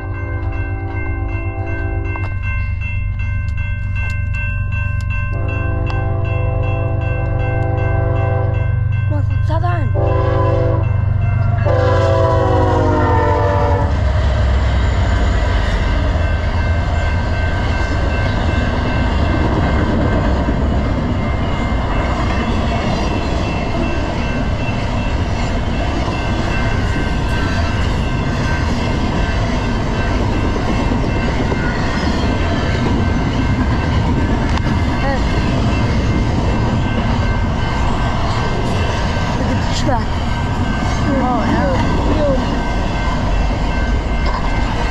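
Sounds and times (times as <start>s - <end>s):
train wheels rumbling on rails: 0.0s - 44.9s
train horn chord: 5.3s - 8.7s, 10.0s - 14.0s.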